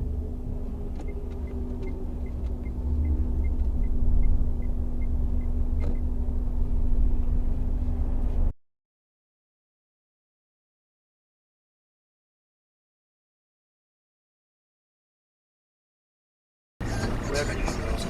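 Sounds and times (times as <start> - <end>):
steady hum: 0.0 - 8.5
road and engine rumble in car: 0.0 - 8.6, 16.8 - 18.0.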